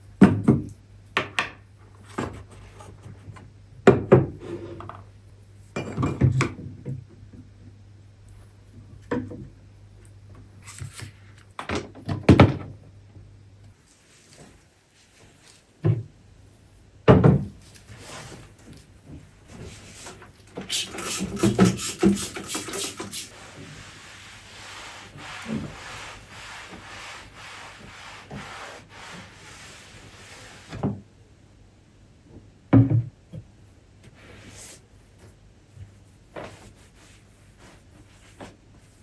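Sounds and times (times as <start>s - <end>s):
scraping and rubbing: 19.6s - 30.7s.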